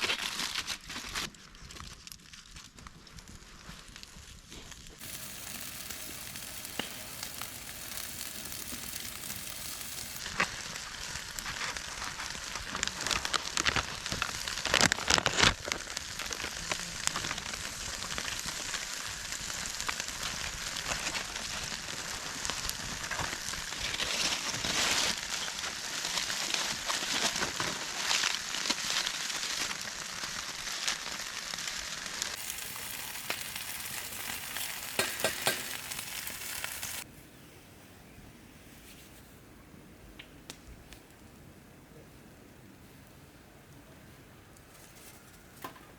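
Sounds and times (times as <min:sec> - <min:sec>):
crackles and pops: 0:01.1 - 0:37.1, 0:40.2 - 0:41.4
food sizzling in a pan: 0:05.0 - 0:13.2, 0:28.5 - 0:37.1.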